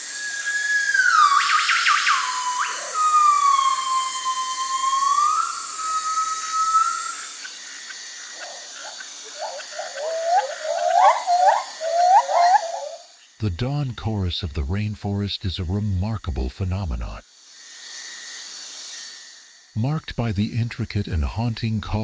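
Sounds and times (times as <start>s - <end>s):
gibbon whooping call: 0.0s - 13.1s.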